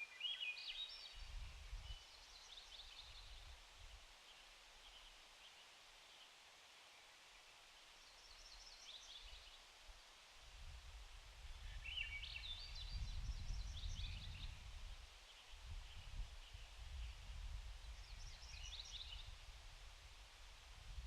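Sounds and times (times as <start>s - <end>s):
small birds chirping: 15.2s - 19.4s.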